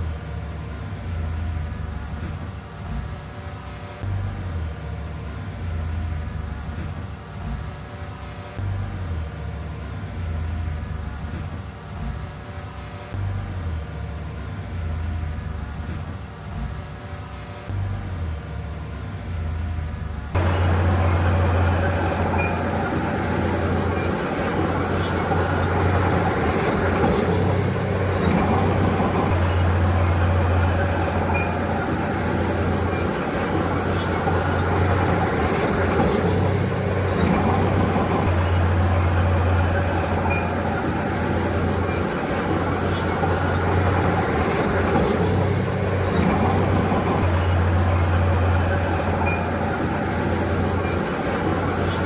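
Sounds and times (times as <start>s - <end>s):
bulldozer diesel engine running: 19.4s - 52.0s
steel tracks squeaking: 20.4s - 52.0s.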